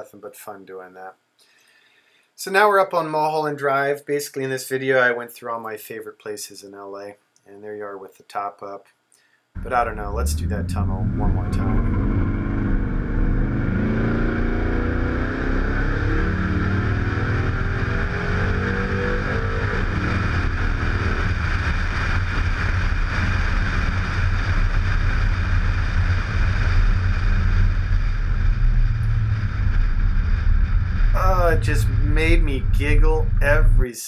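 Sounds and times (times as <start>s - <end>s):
car engine accelerating hard: 9.6s - 33.8s
wind noise on microphone: 19.8s - 33.8s.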